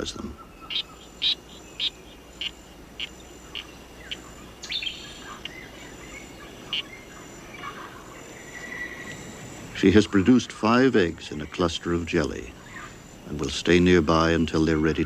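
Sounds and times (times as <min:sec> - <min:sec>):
frog chirping: 0:00.0 - 0:15.0
insect trill: 0:00.0 - 0:15.0.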